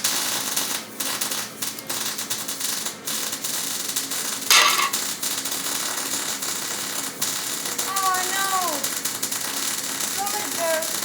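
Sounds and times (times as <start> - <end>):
loud metallic clank: 4.5 - 5.0
metal tools clattering: 4.5 - 5.0.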